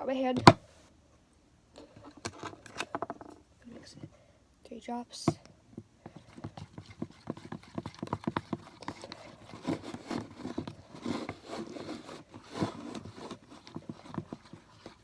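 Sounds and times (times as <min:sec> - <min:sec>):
utensil scraping and knocking bowl: 0:06.0 - 0:15.0.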